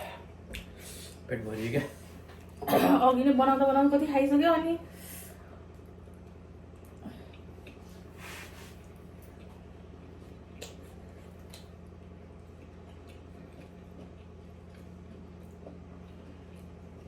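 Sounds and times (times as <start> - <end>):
steady low hum: 0.0 - 17.0
soft chewing: 5.6 - 17.0.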